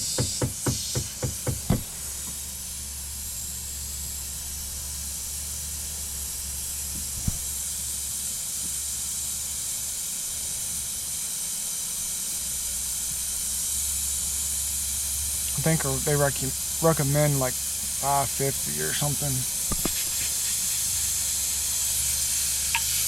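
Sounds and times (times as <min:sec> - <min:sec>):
gas hissing through hose: 0:00.0 - 0:23.0
knocks: 0:00.2 - 0:01.9.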